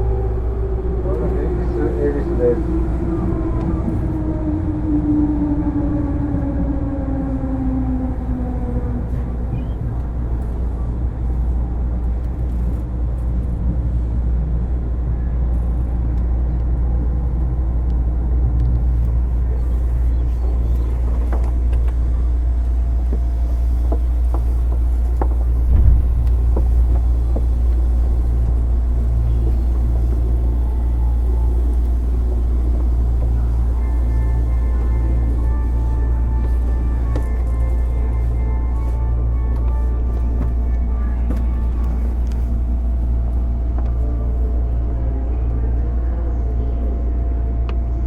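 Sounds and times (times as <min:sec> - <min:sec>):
train interior low rumble: 0:00.0 - 0:48.0.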